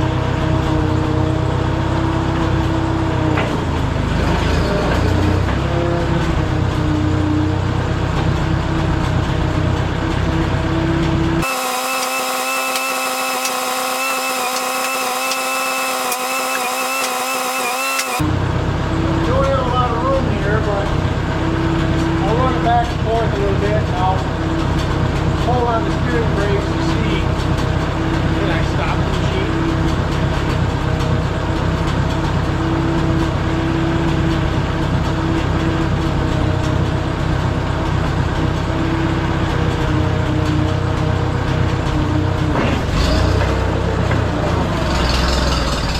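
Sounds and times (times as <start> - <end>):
bulldozer engine rumbling: 0.0 - 45.9
engine whine: 0.0 - 45.9
machine whine: 11.4 - 18.4.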